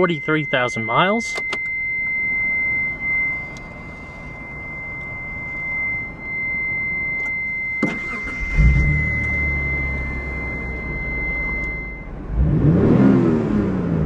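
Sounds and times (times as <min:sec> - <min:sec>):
high-pitched electronic tone: 0:00.0 - 0:12.1
faint hum: 0:00.0 - 0:12.2
low rumble: 0:01.6 - 0:12.7.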